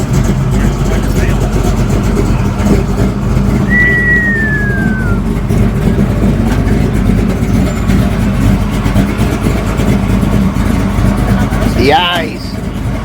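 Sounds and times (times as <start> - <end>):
car engine running: 0.0 - 13.0
high tone gliding downward: 3.7 - 5.3.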